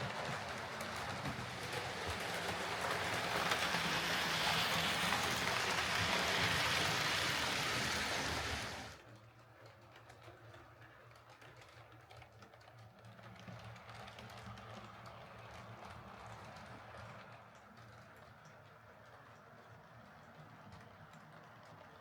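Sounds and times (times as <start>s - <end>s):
model train motor whirring: 0.0s - 9.0s.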